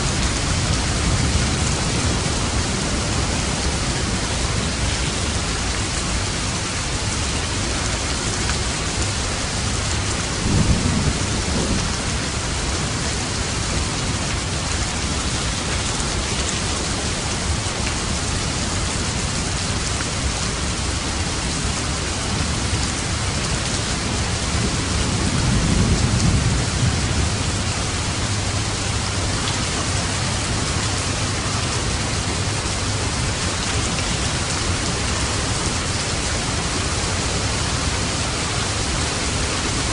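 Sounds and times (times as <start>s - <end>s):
heavy rain: 0.0s - 39.9s
low rolls of thunder: 10.4s - 14.1s, 24.5s - 28.6s.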